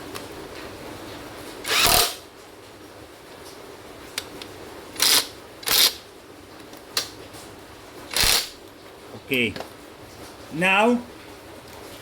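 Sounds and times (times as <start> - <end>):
impact wrench bursts: 1.6 - 2.2, 5.0 - 6.0, 8.1 - 8.6.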